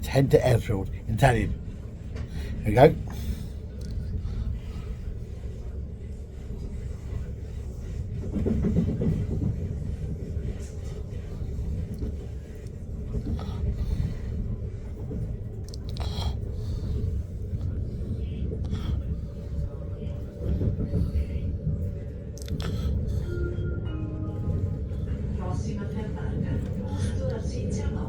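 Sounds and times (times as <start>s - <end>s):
train rumble inside carriage: 0.0s - 28.0s.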